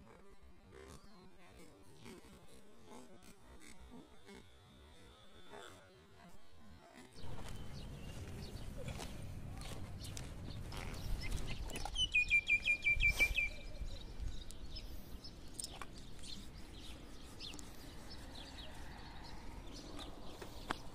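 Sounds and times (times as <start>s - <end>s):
bird chirping rapidly: 10.9s - 13.8s.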